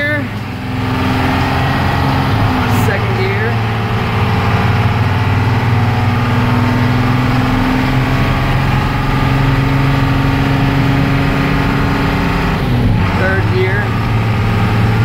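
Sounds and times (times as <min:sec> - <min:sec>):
bus engine pulling: 0:00.0 - 0:15.0
transmission gear whine: 0:00.0 - 0:15.0.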